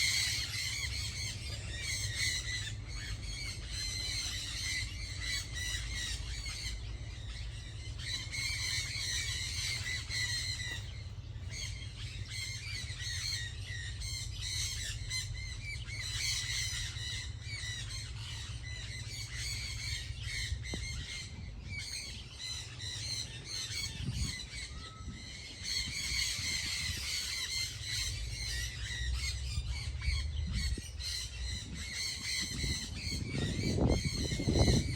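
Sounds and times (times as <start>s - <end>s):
chorus of birds chattering: 0.0s - 34.9s
steady low rumble: 0.0s - 34.9s.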